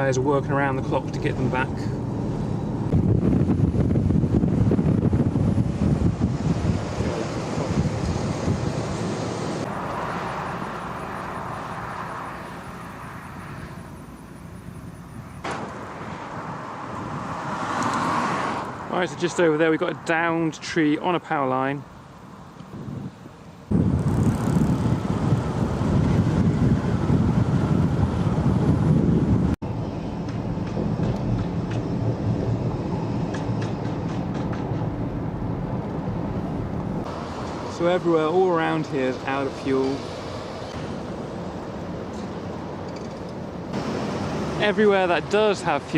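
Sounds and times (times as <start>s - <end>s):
vehicle road and wind noise: 0.0s - 45.9s
car driving rumble: 23.7s - 37.8s.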